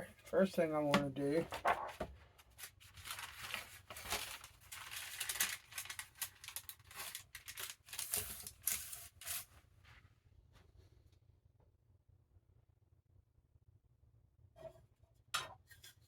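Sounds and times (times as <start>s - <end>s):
book pages rustling: 1.0s - 10.0s.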